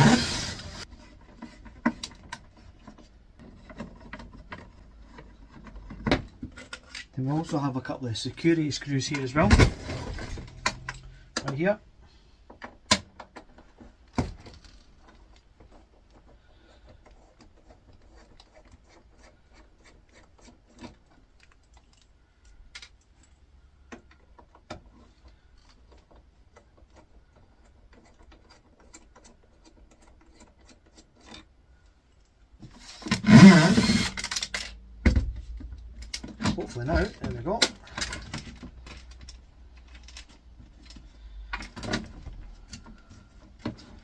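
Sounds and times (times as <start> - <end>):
rough scraping noise: 0.0 - 1.6.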